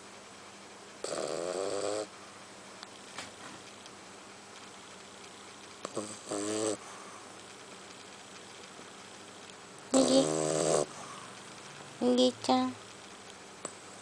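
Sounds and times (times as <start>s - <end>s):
puppy snoring: 1.0s - 2.1s, 5.8s - 6.9s, 9.9s - 11.4s.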